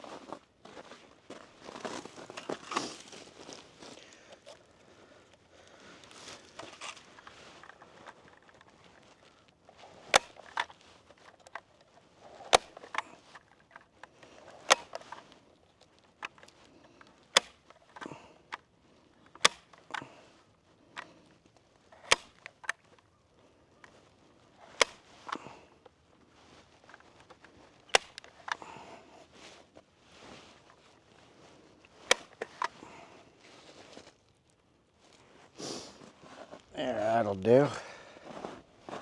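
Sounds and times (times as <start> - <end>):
faint rustling: 1.6 - 39.0
sharp snapping clicks: 10.2 - 10.7, 12.5 - 13.0, 14.6 - 15.2, 17.4 - 18.2, 19.4 - 20.0, 22.0 - 22.9, 27.9 - 28.6, 32.1 - 32.7.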